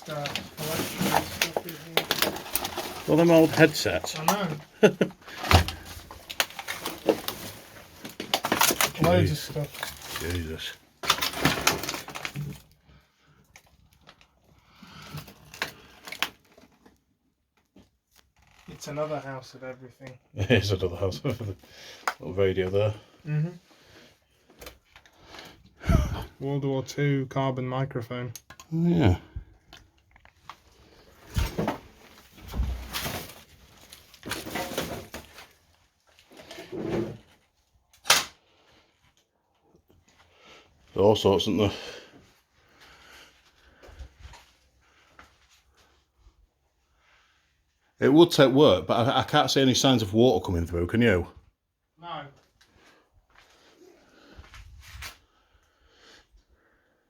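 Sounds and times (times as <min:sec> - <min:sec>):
objects being handled: 0:00.0 - 0:12.8, 0:29.7 - 0:38.2.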